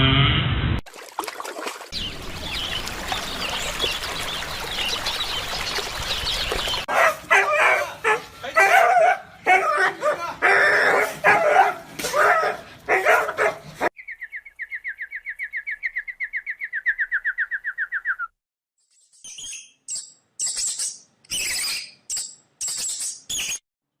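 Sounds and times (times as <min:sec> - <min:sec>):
dog yipping and whining: 0:06.9 - 0:13.6
high-pitched bird chirps: 0:14.0 - 0:18.3, 0:18.9 - 0:23.6.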